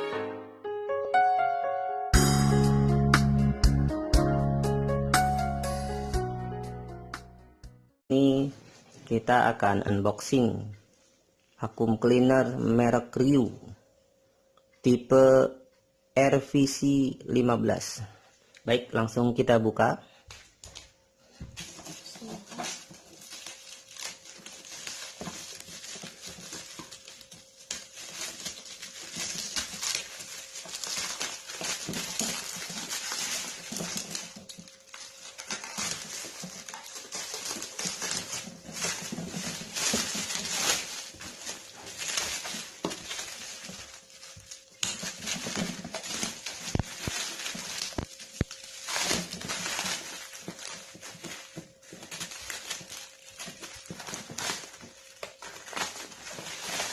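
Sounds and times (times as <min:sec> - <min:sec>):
cardboard rustling and scraping: 0:20.7 - 0:56.9.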